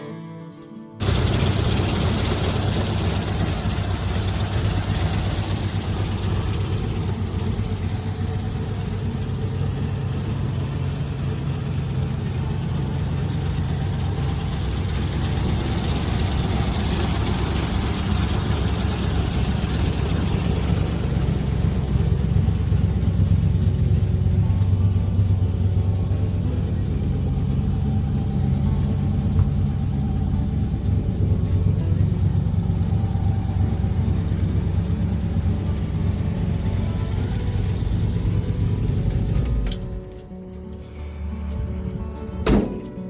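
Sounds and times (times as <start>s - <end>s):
engine idling: 1.0s - 43.0s.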